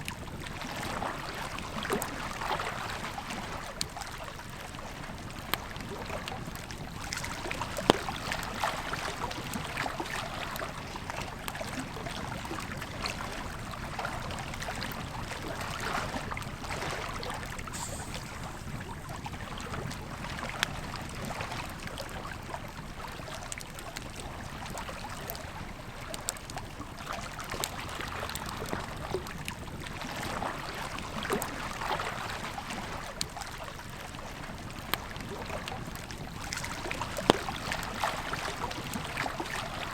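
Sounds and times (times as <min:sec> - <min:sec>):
river flowing: 0:15.4 - 0:20.4
campfire crackling and popping: 0:17.4 - 0:21.0.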